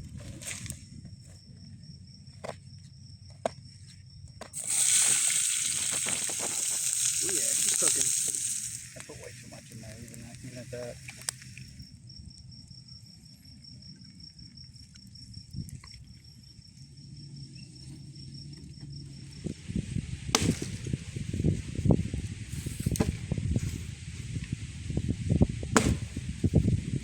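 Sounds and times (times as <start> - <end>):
campfire crackling and popping: 4.5 - 11.8, 19.4 - 27.0.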